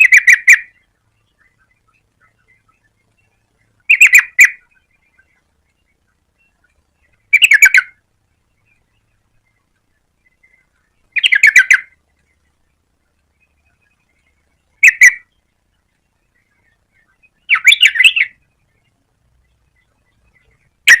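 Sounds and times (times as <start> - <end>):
bird calling bubbly notes: 0.0 - 0.8, 3.8 - 5.2, 7.2 - 8.0, 11.1 - 12.0, 17.0 - 18.4.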